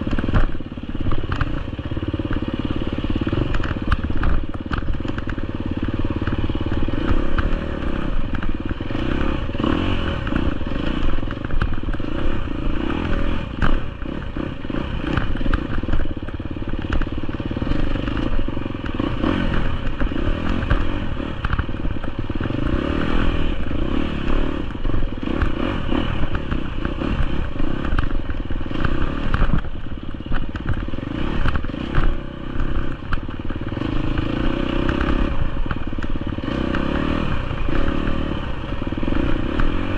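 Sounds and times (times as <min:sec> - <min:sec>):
dirt bike engine revving: 0:00.0 - 0:39.9
knocks and clatter: 0:24.6 - 0:36.9.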